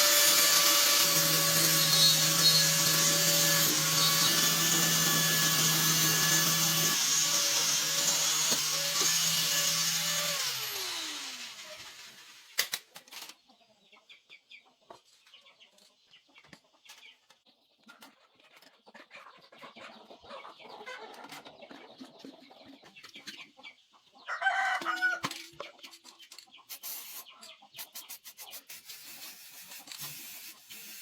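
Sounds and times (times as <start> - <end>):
chickens clucking: 12.9 - 28.9.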